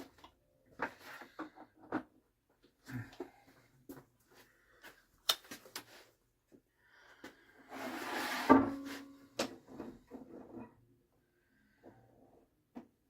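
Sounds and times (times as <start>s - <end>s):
rustling scrape: 7.7s - 9.2s.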